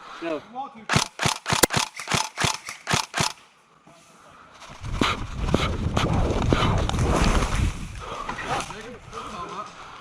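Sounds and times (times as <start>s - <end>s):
airsoft gun firing pops: 0.9s - 3.4s.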